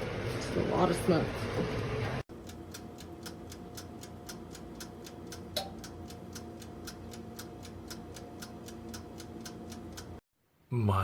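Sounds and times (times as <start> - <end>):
dial timer ticking: 2.3 - 10.2.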